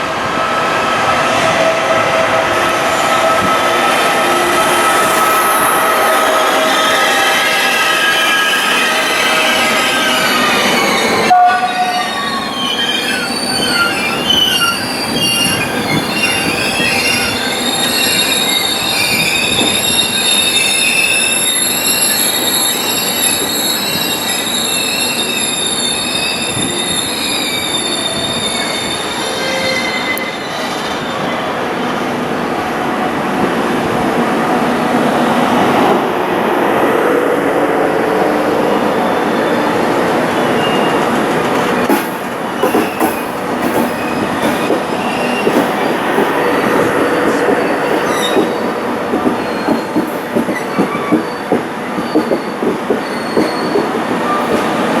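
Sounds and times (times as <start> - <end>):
train cars rumbling: 0.0 - 55.0
train wheels squealing: 3.0 - 31.4, 40.4 - 54.8.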